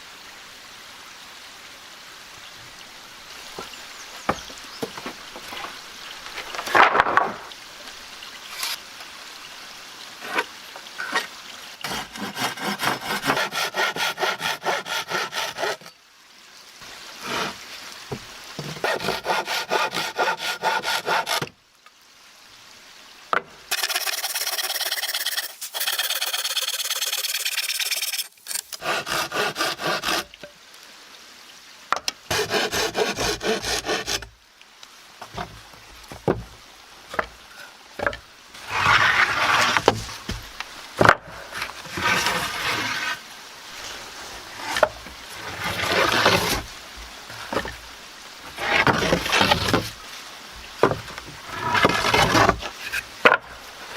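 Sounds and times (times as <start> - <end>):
rough scraping strokes: 8.5 - 8.8, 10.2 - 16.0, 17.2 - 17.6, 18.6 - 21.5, 23.7 - 30.4, 32.3 - 34.3, 38.5 - 40.4, 41.3 - 47.8, 48.4 - 50.2, 51.4 - 53.9
hand saw sawing wood: 11.8 - 15.9, 17.2 - 17.6, 18.6 - 21.5, 23.7 - 30.4, 32.3 - 34.3, 38.0 - 40.2, 41.5 - 43.2, 44.6 - 46.7, 48.5 - 50.0, 50.8 - 53.9.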